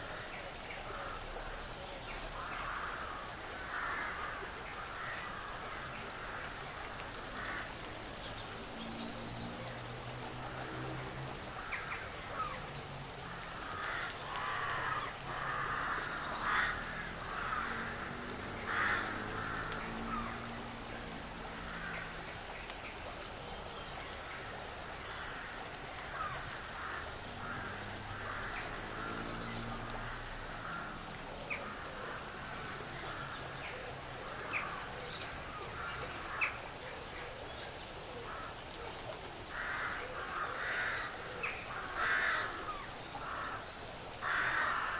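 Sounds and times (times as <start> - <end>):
crows cawing: 2.4 - 7.7, 11.5 - 12.6, 13.3 - 22.2, 25.0 - 36.6, 39.5 - 44.9.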